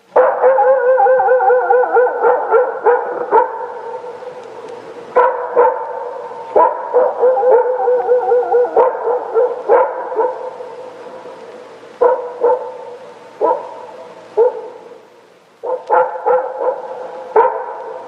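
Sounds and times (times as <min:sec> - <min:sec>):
wolves howling: 0:00.2 - 0:11.3.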